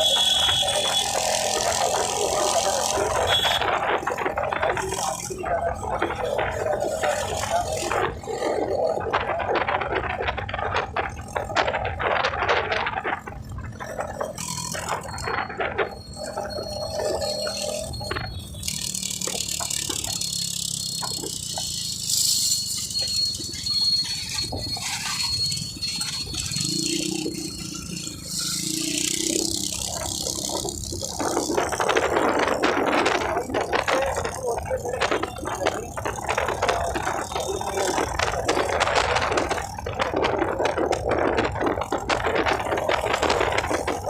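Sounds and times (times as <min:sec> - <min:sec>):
rattling and clattering: 0:22.6 - 0:44.0.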